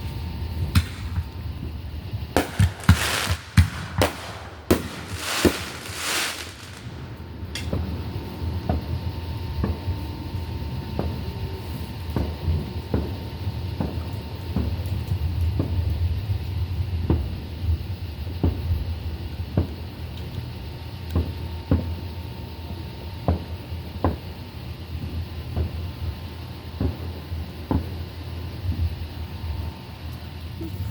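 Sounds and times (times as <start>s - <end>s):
steady low rumble: 0.7s - 8.5s
dull sharp thumps: 2.4s - 6.8s.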